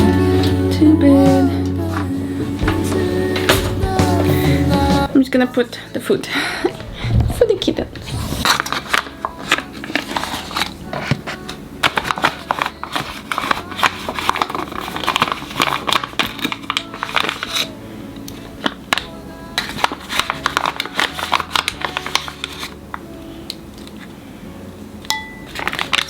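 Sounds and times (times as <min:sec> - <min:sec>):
food packaging crinkling: 0:08.0 - 0:23.0, 0:25.4 - 0:26.0.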